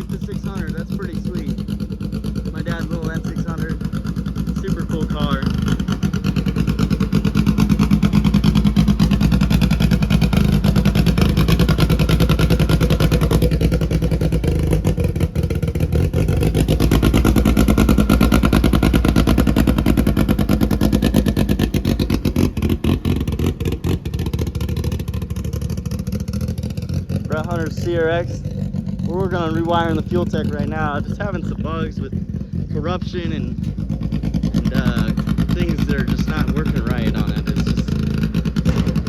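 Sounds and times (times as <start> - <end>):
car engine running: 0.0 - 39.0.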